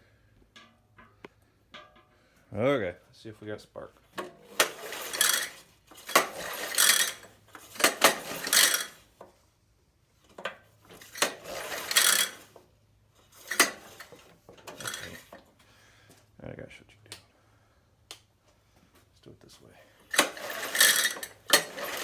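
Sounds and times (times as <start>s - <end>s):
recoil starter pulled rattling: 4.2s - 9.0s, 11.0s - 12.6s, 13.4s - 15.4s, 20.1s - 22.0s.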